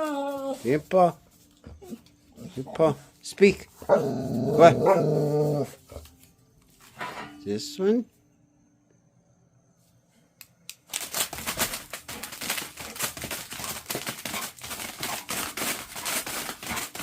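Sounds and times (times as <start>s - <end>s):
dense crinkling and crackling: 10.8s - 17.0s.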